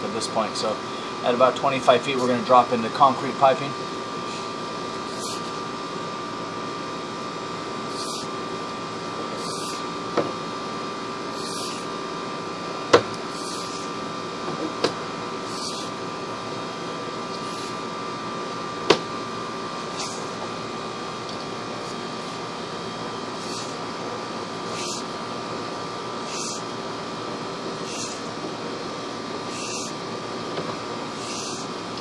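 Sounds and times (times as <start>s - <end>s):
electrical hum with tones: 0.0s - 32.0s
camera knocking in pipe: 12.9s - 13.7s, 14.4s - 15.0s, 18.9s - 19.1s.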